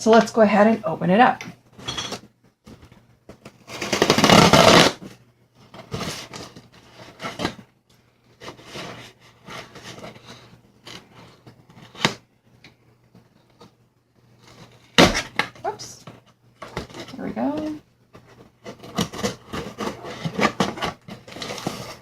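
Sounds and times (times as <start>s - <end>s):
cardboard scraping and rustling: 3.6s - 7.6s, 8.3s - 12.2s, 16.7s - 22.0s
packing tape being cut: 3.7s - 5.0s.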